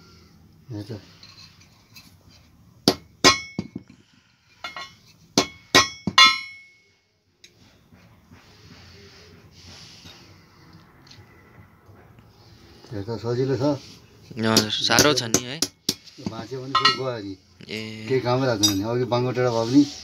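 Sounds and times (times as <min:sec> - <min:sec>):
hammer striking iron on anvil: 0:02.8 - 0:03.8, 0:04.7 - 0:06.8.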